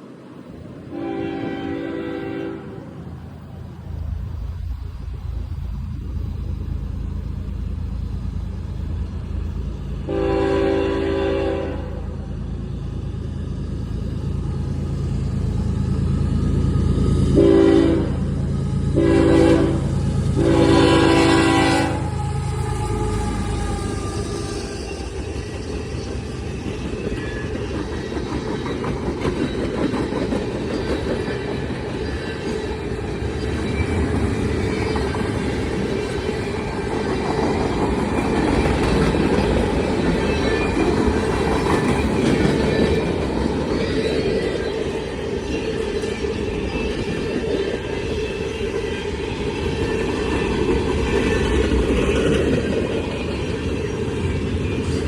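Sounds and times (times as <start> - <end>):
train wheels clattering: 20.2 - 55.0
wheel squeal: 38.0 - 52.2.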